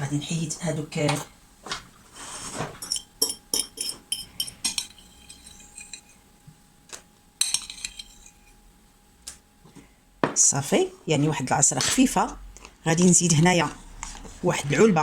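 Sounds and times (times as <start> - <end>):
utensil tapping a dish: 2.8 - 5.0.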